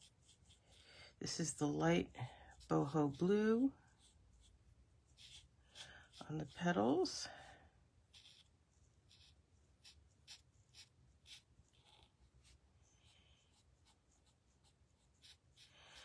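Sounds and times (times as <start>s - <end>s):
marker scratching on cardstock: 0.0s - 0.8s, 2.6s - 7.0s, 8.1s - 8.5s, 9.1s - 12.6s, 13.4s - 16.0s.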